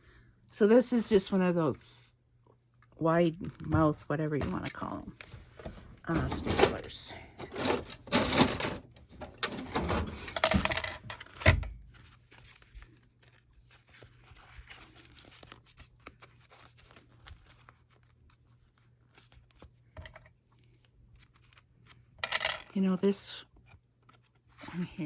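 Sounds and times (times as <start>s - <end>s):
paper rustling: 11.9s - 19.8s.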